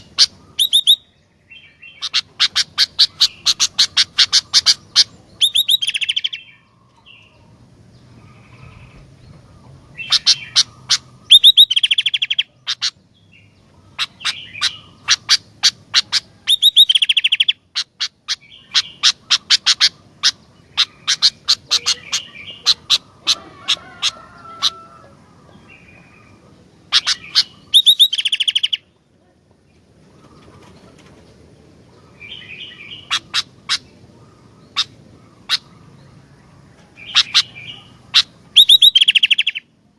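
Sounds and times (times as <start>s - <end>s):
bulbul chattering calls: 0.0s - 29.0s, 29.7s - 39.8s.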